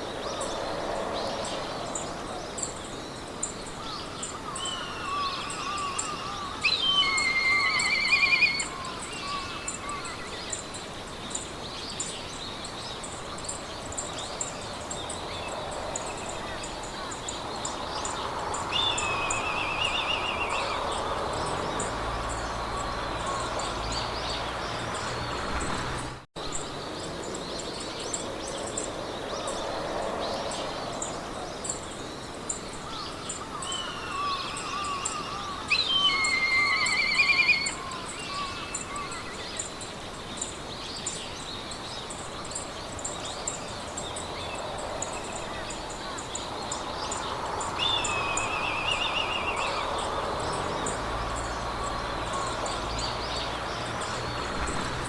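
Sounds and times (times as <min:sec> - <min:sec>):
birds singing: 0:00.0 - 0:55.0
loud trilling birdsong: 0:00.0 - 0:55.0
wind in the grass: 0:00.0 - 0:55.0.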